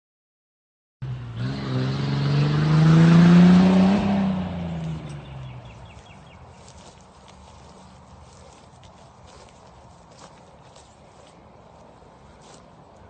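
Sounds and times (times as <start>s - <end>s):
truck driving past: 1.0s - 6.4s.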